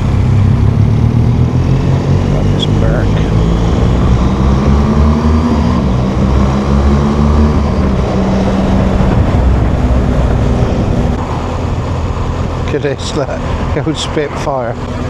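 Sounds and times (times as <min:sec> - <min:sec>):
motorcycle engine cruising: 0:00.0 - 0:15.0
wind noise: 0:00.0 - 0:15.0.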